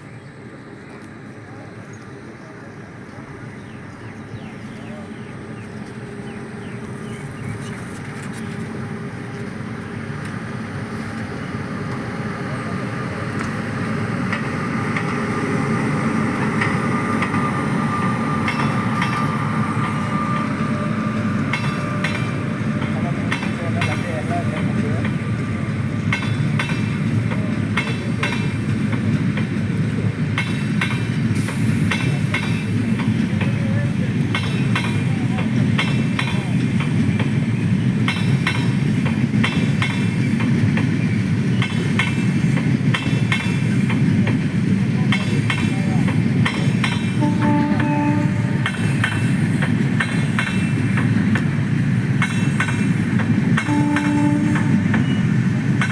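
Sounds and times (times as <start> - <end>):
train rumbling: 0.0 - 55.9
wheels clacking over rail joints: 13.3 - 37.4, 38.0 - 55.9.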